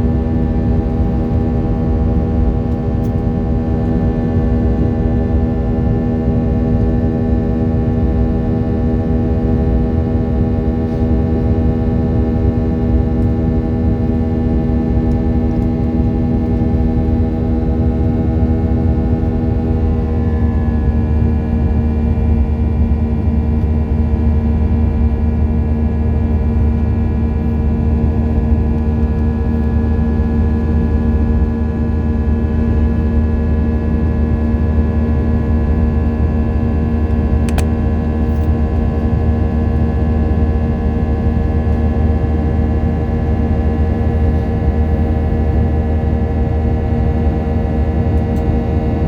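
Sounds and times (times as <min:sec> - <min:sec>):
aircraft engines droning in cabin: 0:00.0 - 0:49.0
single click: 0:37.5 - 0:37.8.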